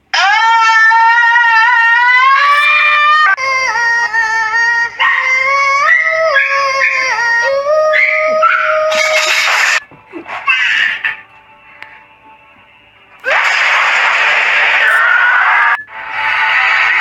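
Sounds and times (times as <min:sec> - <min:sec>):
dog howling: 0:00.1 - 0:09.6.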